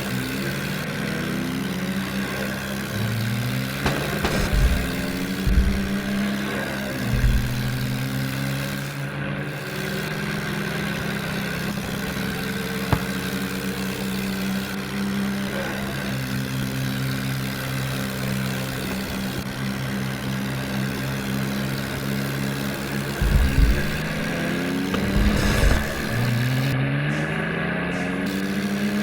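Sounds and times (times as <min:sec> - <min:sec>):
heavy diesel engine running: 0:00.0 - 0:29.0
sharp click: 0:03.8 - 0:06.3
low thumps: 0:03.8 - 0:08.4, 0:23.2 - 0:26.8.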